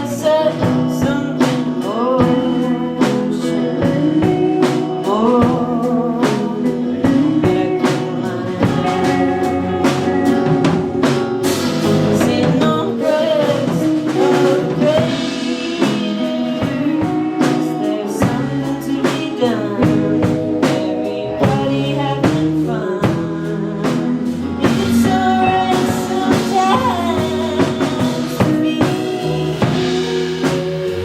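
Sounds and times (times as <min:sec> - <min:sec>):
person singing: 0:00.0 - 0:31.0
rock band playing: 0:00.0 - 0:31.0.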